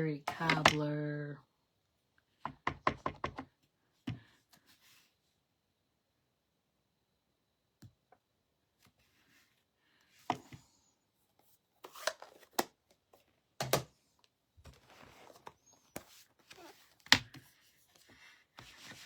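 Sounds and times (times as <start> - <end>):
rubber stamp tapping and knocking: 0.3 - 0.8, 2.4 - 3.5, 13.6 - 13.9.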